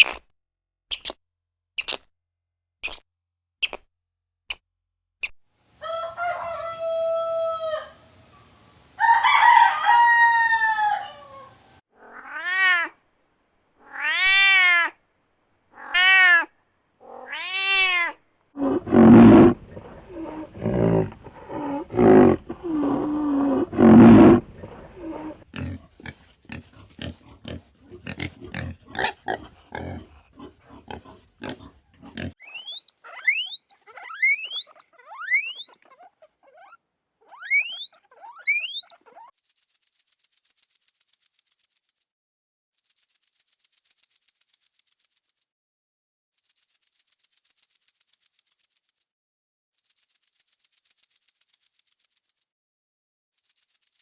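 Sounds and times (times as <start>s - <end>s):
short sharp animal chirps: 0.0s - 0.2s, 0.9s - 1.2s, 1.8s - 2.1s, 2.8s - 3.0s, 3.6s - 3.9s, 31.0s - 39.3s
loud low grunting calls: 18.6s - 32.6s
animal calls rising and falling: 18.6s - 39.3s
long pitched animal calls: 18.6s - 39.3s.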